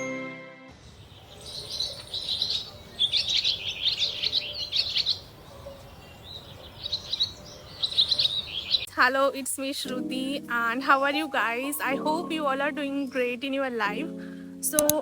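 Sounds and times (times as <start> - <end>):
small birds chirping and twittering: 0.8 - 8.9.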